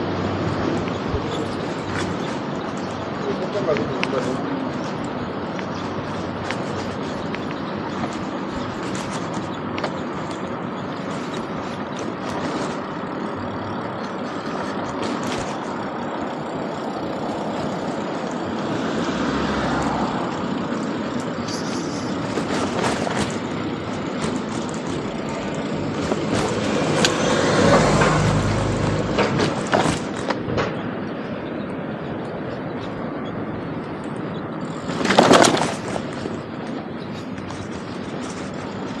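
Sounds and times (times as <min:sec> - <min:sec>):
vehicle noise: 0:00.0 - 0:39.0
sharp clicks and knocks: 0:21.2 - 0:30.9.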